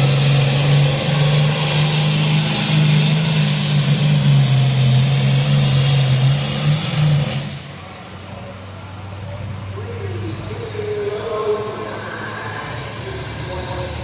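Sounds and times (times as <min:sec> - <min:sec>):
tractor engine running under load: 0:00.0 - 0:07.9.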